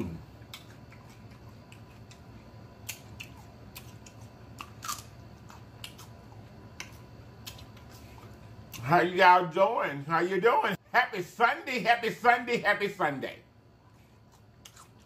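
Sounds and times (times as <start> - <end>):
person chewing celery: 0.0 - 8.8, 13.9 - 15.0.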